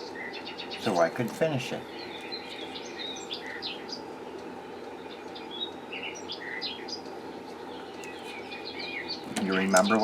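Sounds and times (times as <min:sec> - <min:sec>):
low background hum: 0:00.0 - 0:10.0
small birds chirping: 0:00.0 - 0:10.0.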